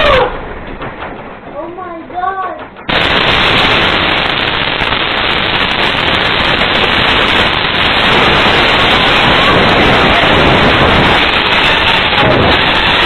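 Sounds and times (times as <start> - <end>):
explosion blast roar: 0.0 - 0.8, 2.9 - 13.0
debris clattering: 0.0 - 6.9.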